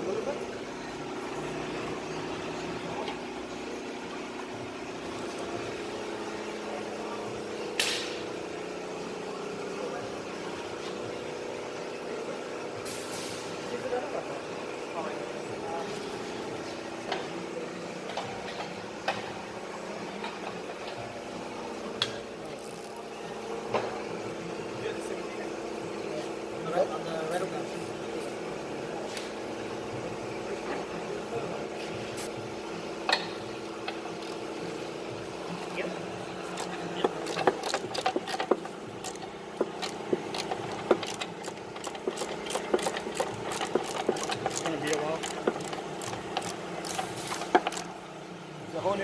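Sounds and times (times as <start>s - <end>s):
hand tools tapping on metal: 36.5s - 47.9s.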